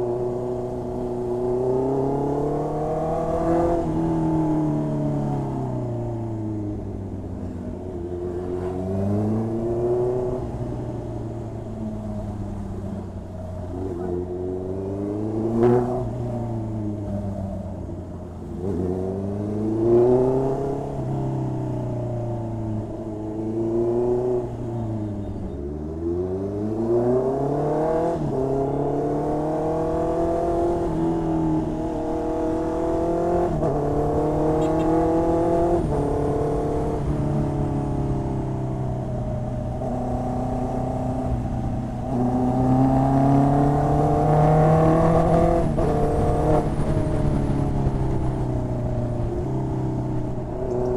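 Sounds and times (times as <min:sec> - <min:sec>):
motorcycle engine revving: 0:17.9 - 0:50.9.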